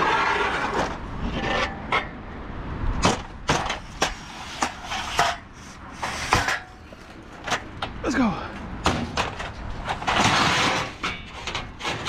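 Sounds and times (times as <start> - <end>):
scrap metal scraping: 0.0 - 2.2, 3.5 - 7.6, 9.2 - 12.0.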